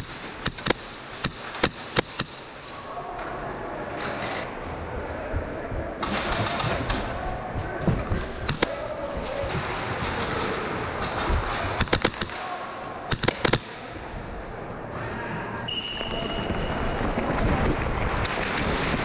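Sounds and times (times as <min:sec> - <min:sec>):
airsoft gunshots: 0:00.0 - 0:02.4, 0:11.6 - 0:13.8
noisy din of field: 0:00.0 - 0:19.0.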